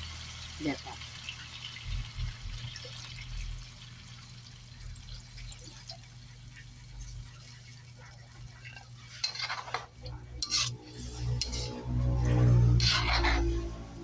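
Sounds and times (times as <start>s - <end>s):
metal utensil scraping a pan: 8.2s - 14.0s
low hum: 10.0s - 14.0s.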